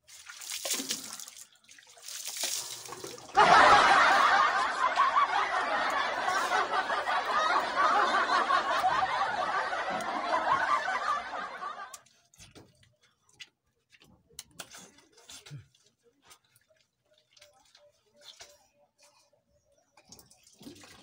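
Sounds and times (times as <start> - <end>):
faint water drips: 0.0 - 3.4, 8.6 - 21.0
water pouring and splashing on concrete: 0.0 - 3.4, 6.2 - 6.6, 14.6 - 18.7, 20.0 - 21.0.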